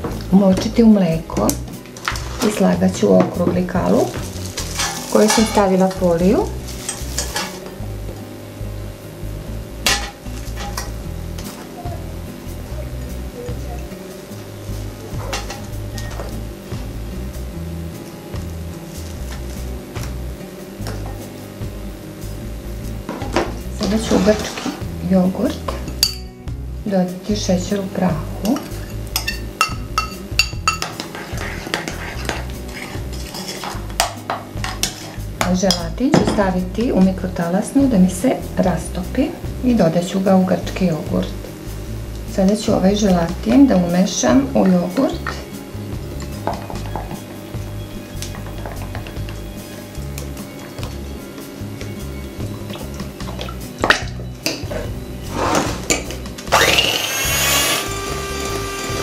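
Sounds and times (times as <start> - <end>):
faint background music: 0.0 - 59.0
spoon clinking and scraping bowl: 4.6 - 5.8, 28.4 - 35.9
electric hand mixer whining: 56.5 - 59.0.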